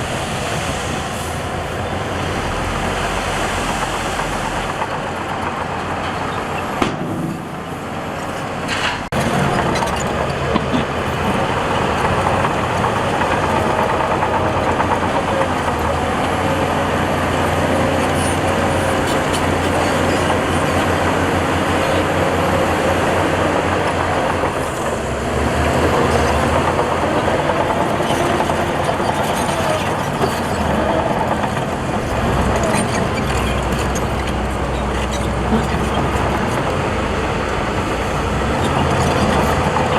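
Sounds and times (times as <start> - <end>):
diesel machinery running: 0.0 - 39.9
sharp knocks: 6.8 - 7.7.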